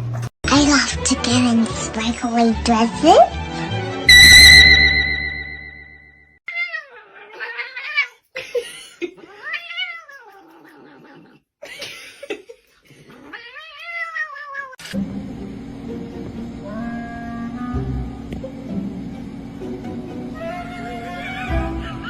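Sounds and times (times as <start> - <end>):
pet yowling: 6.5 - 8.2, 9.2 - 11.4, 13.2 - 14.8, 20.4 - 22.0.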